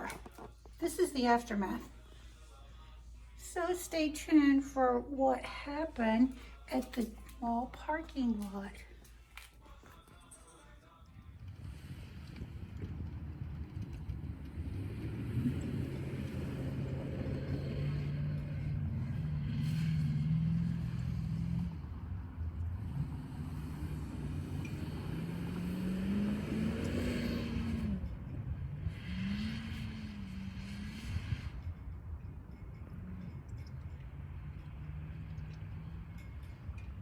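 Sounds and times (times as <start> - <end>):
engine pulling under throttle: 11.3 - 37.0.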